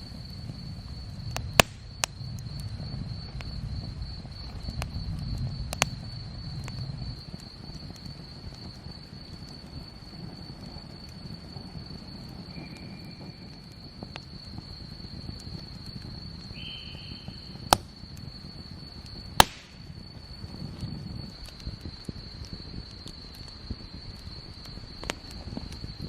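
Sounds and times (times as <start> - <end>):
campfire wood popping: 0.0 - 26.0
crickets trilling: 0.0 - 26.0
short insect notes: 11.8 - 26.0.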